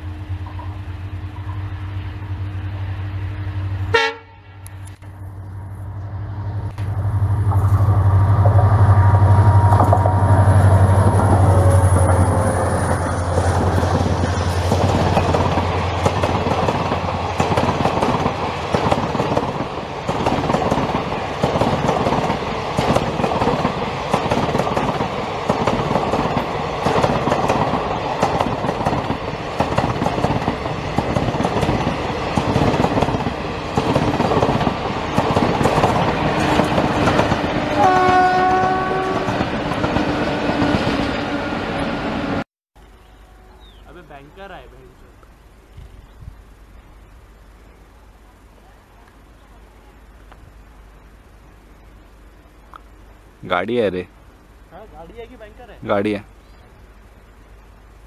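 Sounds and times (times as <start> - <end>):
locomotive passing close by: 0.0 - 42.4
electric locomotive hum: 0.0 - 58.0
wheels clacking over rail joints: 6.7 - 41.2.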